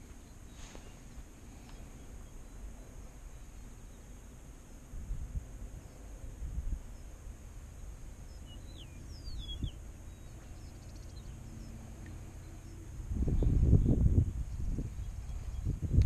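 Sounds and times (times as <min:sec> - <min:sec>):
low outdoor rumble: 0:00.0 - 0:16.0
bird chirping: 0:08.2 - 0:16.0.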